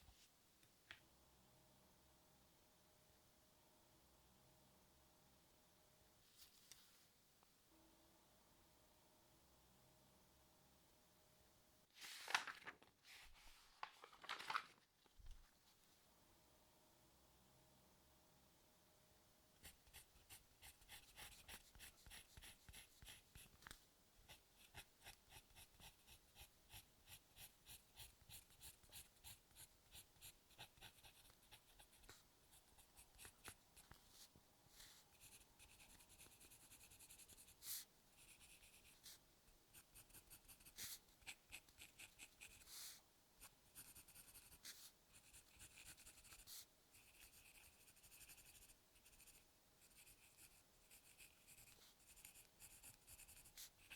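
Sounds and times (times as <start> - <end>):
pencil scratching on paper: 19.6 - 23.6, 24.3 - 53.9.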